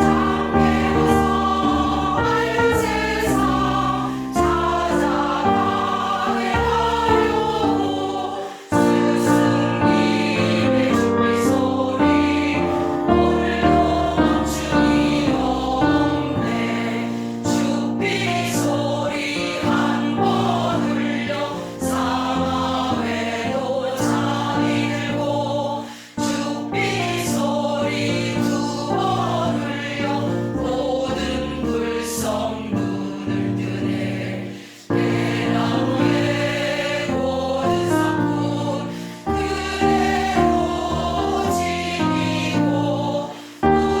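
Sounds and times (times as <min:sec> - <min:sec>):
musical accompaniment: 0:00.0 - 0:25.7
choir singing in unison: 0:00.0 - 0:44.0.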